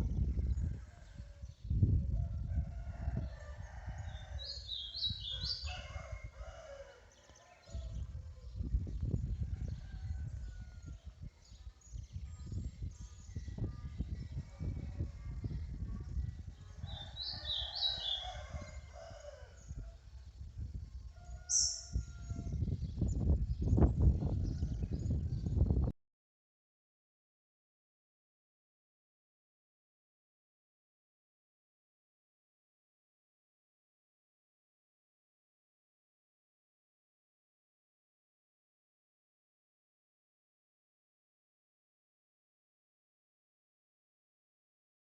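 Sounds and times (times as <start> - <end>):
distant rooster crowing: 0.5 - 8.0, 9.4 - 11.1, 16.8 - 20.0, 21.2 - 22.6
rooster crowing: 5.3 - 7.4, 16.9 - 19.8, 21.2 - 22.6.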